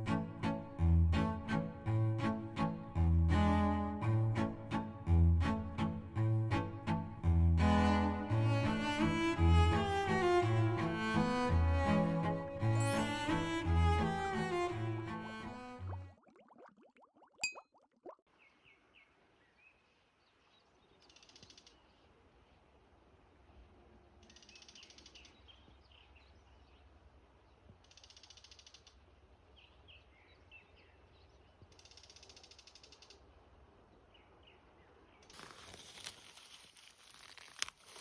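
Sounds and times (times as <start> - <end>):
bird chirps: 20.5 - 22.1, 24.2 - 26.4
rustling: 35.3 - 38.0.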